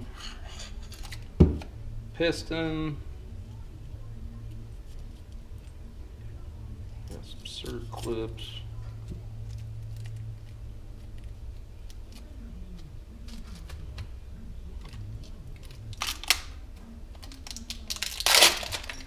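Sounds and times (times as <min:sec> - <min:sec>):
plastic rustle: 0:17.2 - 0:19.0.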